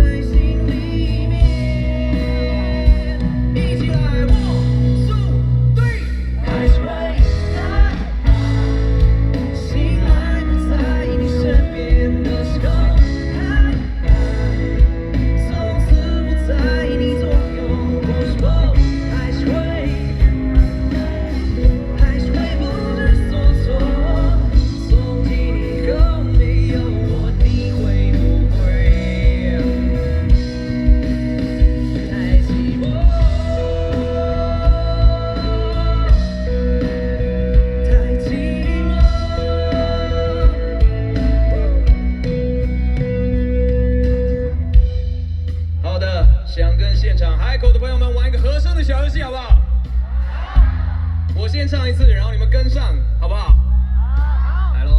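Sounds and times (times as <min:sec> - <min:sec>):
male singer: 0:00.0 - 0:42.4, 0:45.8 - 0:54.9
live band playing pop song: 0:00.0 - 0:54.9.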